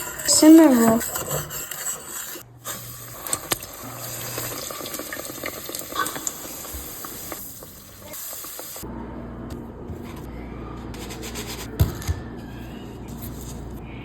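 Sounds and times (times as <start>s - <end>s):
dough sizzling in hot oil: 2.3s - 8.8s.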